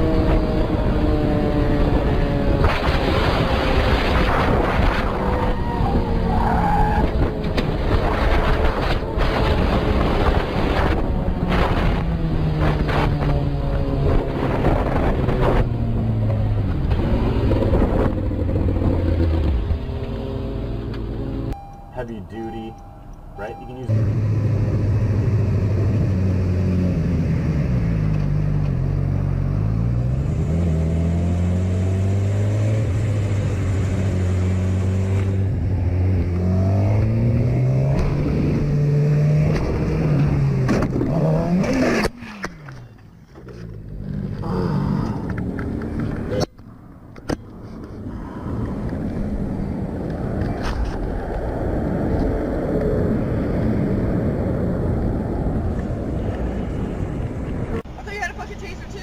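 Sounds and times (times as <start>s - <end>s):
car engines running: 0.0s - 59.0s.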